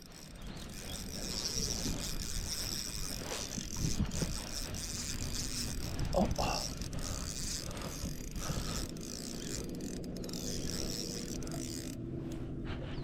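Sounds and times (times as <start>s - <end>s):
fishing reel cranking: 0.0s - 12.1s.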